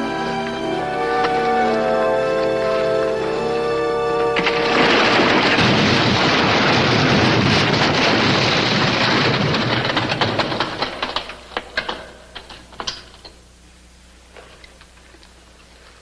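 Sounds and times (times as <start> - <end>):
music with held notes: 0.0 - 4.8
rumble of tumbling rock: 2.5 - 13.6
small stones clattering: 4.3 - 13.4.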